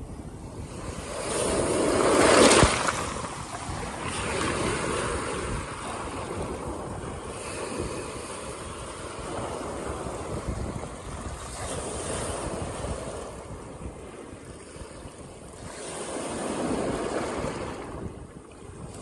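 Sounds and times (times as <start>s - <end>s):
wind rumbling on microphone: 0.0s - 19.0s
waves crashing on rocks: 0.6s - 14.8s
water washing over rocks: 1.4s - 5.3s.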